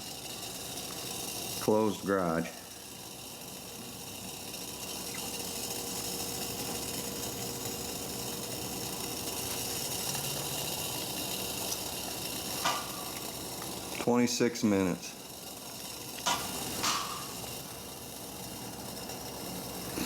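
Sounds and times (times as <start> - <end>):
stove burning: 0.0 - 20.0
water boiling in a pot: 0.0 - 20.0.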